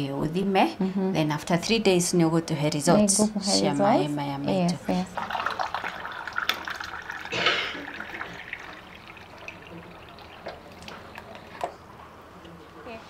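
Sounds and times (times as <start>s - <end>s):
water splashing into a container: 5.2s - 11.8s.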